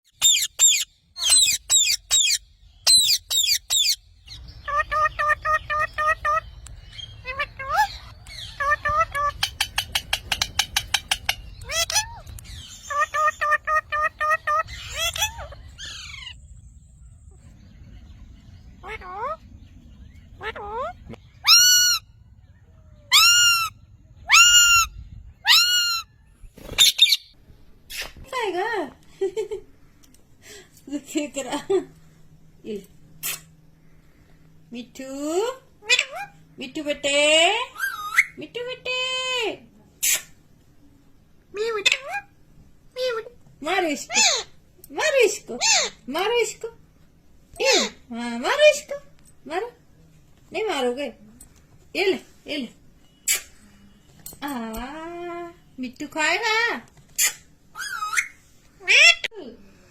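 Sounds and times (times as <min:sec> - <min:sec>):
parrot screeching: 0:00.1 - 0:16.4, 0:20.4 - 0:22.1, 0:23.0 - 0:26.2, 0:37.7 - 0:38.4, 0:57.2 - 0:59.3.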